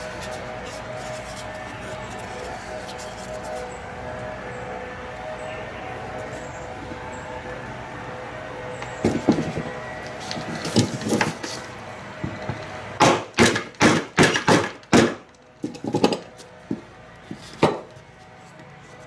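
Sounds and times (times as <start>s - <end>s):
wooden knocking: 17.6s - 17.9s.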